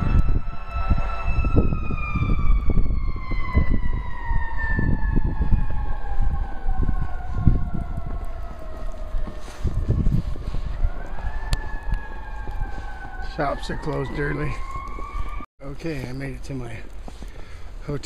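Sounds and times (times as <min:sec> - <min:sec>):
siren falling in pitch: 0:00.0 - 0:15.5.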